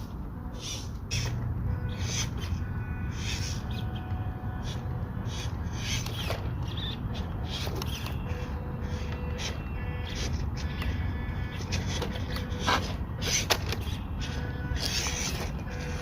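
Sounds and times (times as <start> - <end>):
tyres scraping on rocks: 11.5 - 16.0.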